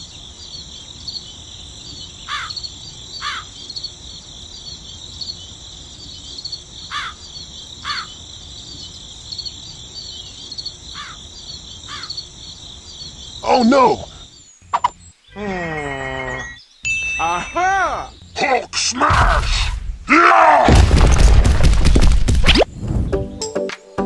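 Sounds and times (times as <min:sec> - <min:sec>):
crickets chirping: 0:00.0 - 0:20.1.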